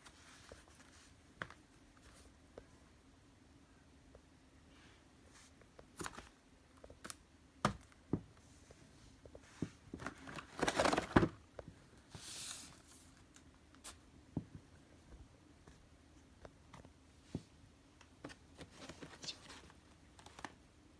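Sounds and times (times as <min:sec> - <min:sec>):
packaging crinkling and rustling: 0:09.9 - 0:11.4, 0:18.3 - 0:20.6.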